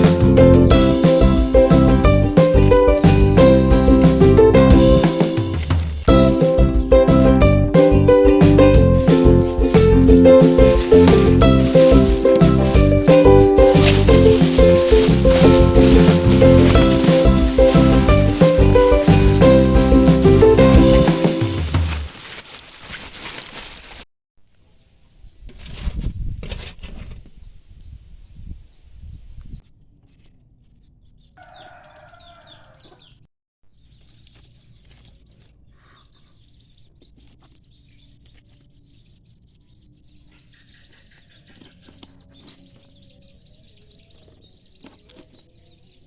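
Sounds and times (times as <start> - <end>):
background music: 0.0 - 22.0
rustles and bumps: 3.9 - 6.4, 8.6 - 24.1
faint bird chirping: 30.6 - 46.0.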